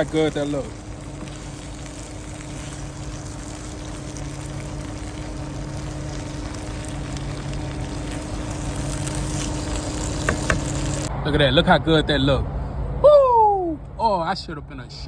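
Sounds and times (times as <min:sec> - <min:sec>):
vegetables sizzling in oil: 0:00.0 - 0:11.1
low hum: 0:00.0 - 0:11.3.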